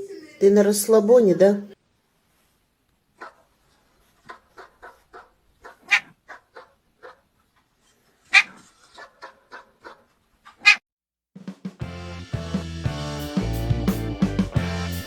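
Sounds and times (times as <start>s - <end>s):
dog yelping: 3.2s - 3.5s, 4.2s - 7.3s, 8.3s - 10.8s
music: 11.4s - 15.0s.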